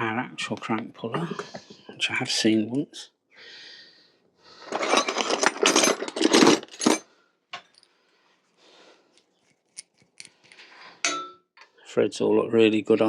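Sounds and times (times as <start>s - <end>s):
metal tools clattering: 4.6s - 7.8s.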